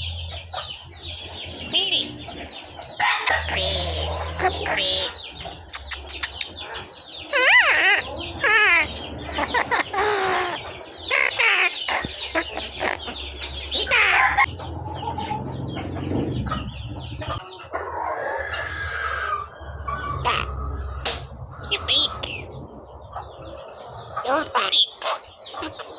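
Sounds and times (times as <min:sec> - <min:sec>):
talking bird chattering: 0:00.0 - 0:25.9.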